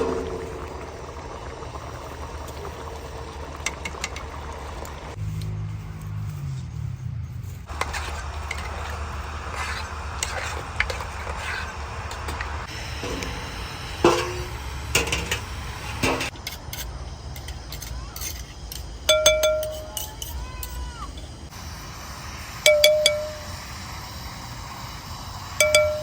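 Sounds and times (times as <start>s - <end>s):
steady low hum: 0.0s - 5.2s, 7.2s - 16.4s
dishes and utensils clinking: 13.0s - 16.8s, 19.1s - 20.7s, 22.7s - 23.4s
sharp ringing clink: 19.1s - 20.3s, 22.6s - 23.5s, 25.6s - 26.0s.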